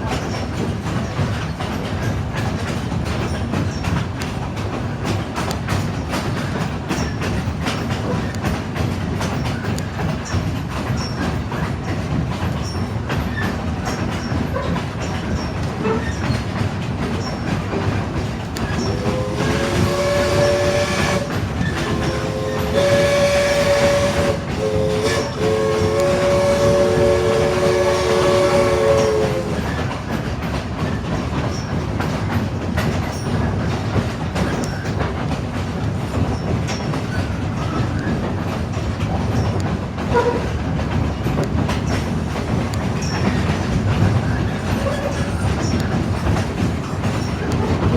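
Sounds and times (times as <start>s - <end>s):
train clicking over rail joints: 0.0s - 47.9s
steam locomotive chime whistle: 18.7s - 29.9s.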